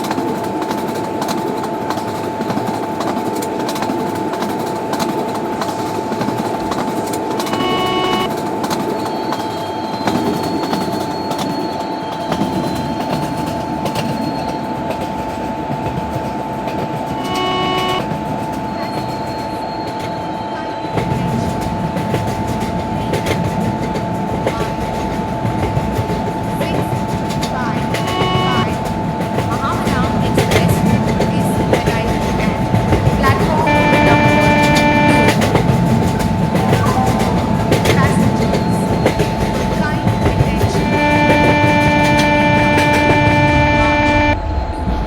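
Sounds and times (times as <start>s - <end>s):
train wheel and rail rumble: 0.0s - 45.0s
train horn blasts: 6.4s - 8.5s, 16.9s - 19.6s, 22.0s - 44.5s
steady high tone: 6.4s - 8.6s, 16.8s - 44.5s.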